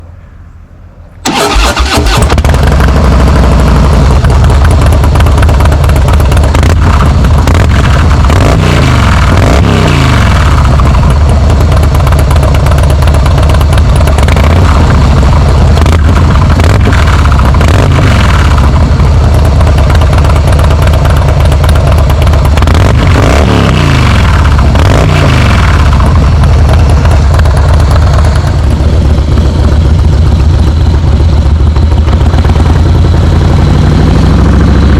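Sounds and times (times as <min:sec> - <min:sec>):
motorcycle engine idling: 0:01.2 - 0:34.9
motorcycle throttle blips: 0:01.2 - 0:34.9.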